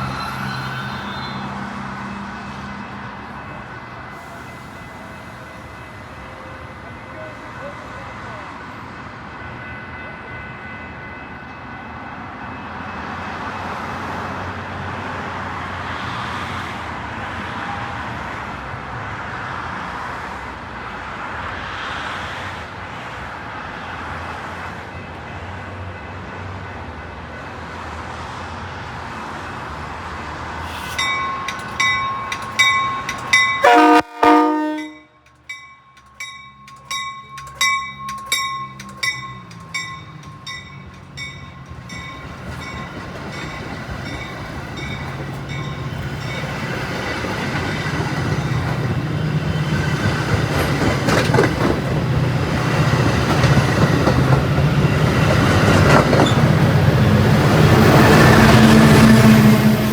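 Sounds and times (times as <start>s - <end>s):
railroad crossing bell ringing: 0.0s - 14.5s, 29.4s - 59.9s
train running on tracks: 0.0s - 59.9s
train horn blast: 33.6s - 35.2s.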